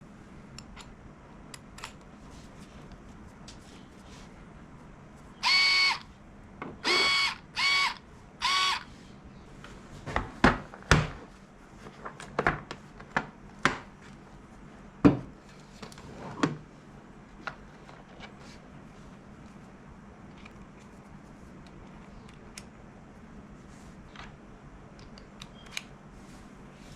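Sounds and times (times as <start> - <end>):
electric screwdriver whine: 5.4 - 6.0, 6.8 - 8.9.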